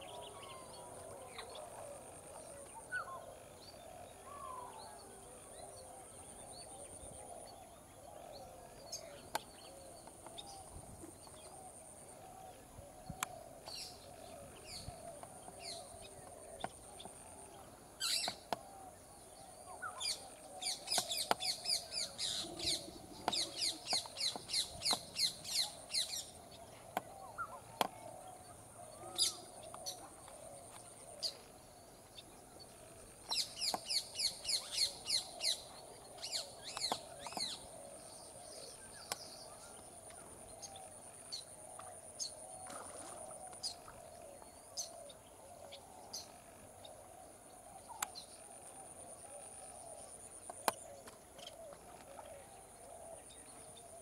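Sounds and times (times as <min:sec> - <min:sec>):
small birds chirping: 0:18.0 - 0:18.7, 0:19.7 - 0:42.4.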